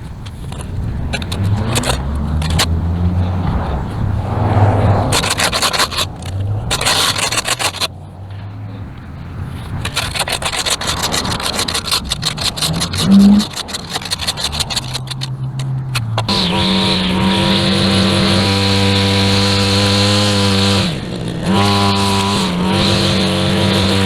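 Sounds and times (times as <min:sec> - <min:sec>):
hand tool scraping concrete: 0:00.0 - 0:08.7, 0:09.4 - 0:24.0.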